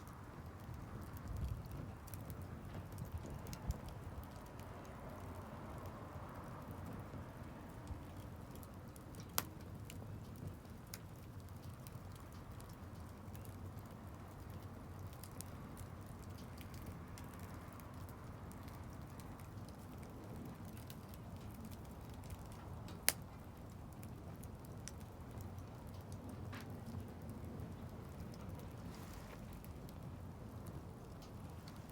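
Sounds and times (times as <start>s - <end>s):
campfire burning with crackles: 0.0s - 31.9s
sharp pops of fire: 0.1s - 31.9s.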